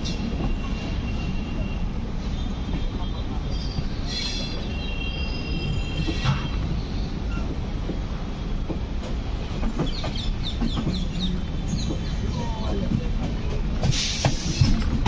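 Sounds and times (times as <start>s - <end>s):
train running gear rumble: 0.0s - 15.0s.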